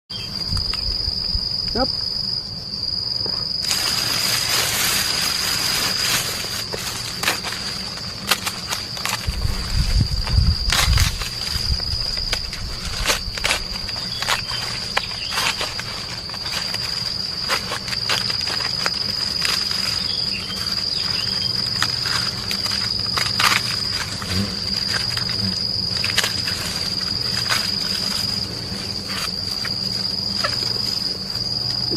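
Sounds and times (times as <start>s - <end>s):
high-pitched insect drone: 0.1s - 31.9s
hornets flying: 0.1s - 31.9s.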